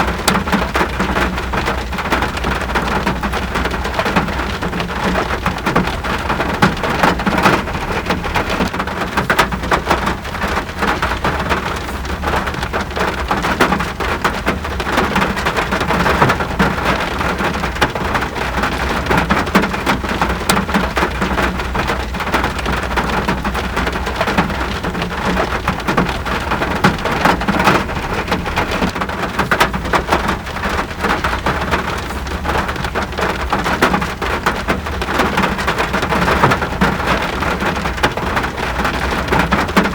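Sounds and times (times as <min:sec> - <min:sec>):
rain patter on a surface: 0:00.0 - 0:39.9.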